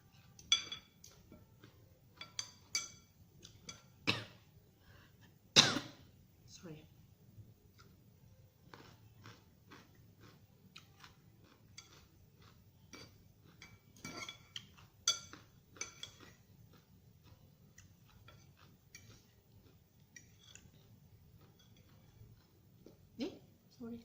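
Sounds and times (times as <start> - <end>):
cutlery clinking on a dish: 0.4 - 4.0, 12.9 - 16.4, 20.1 - 20.9.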